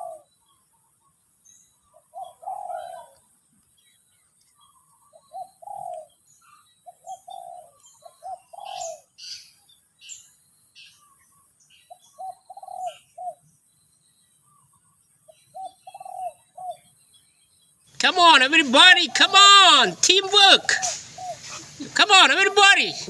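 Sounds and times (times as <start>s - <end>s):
dove cooing: 0.0s - 0.3s, 2.0s - 3.2s, 5.2s - 6.2s, 6.9s - 9.1s, 11.9s - 13.4s, 15.6s - 16.9s, 18.5s - 23.0s
small birds chirping: 0.0s - 23.0s
steady high-pitched hiss: 17.9s - 23.0s.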